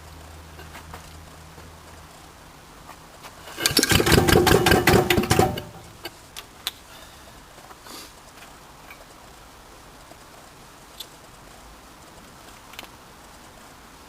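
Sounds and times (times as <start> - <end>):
diesel engine turning over: 3.5 - 6.1.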